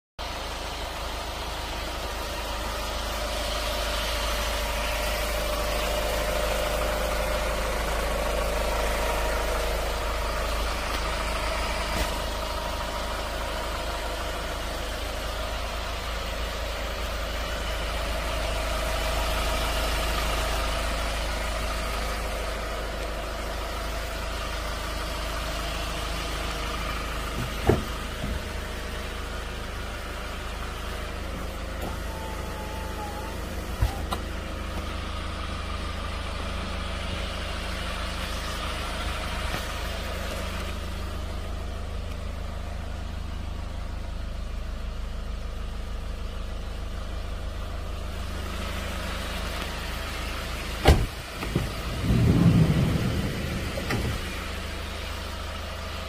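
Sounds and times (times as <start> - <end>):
vehicle engine idling: 0.2 - 56.0
car door opening click: 27.4 - 28.4, 50.8 - 51.8, 53.8 - 54.3.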